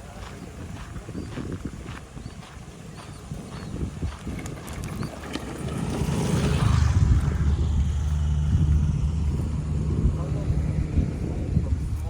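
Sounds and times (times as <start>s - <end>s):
vehicle engine running: 2.7s - 12.0s.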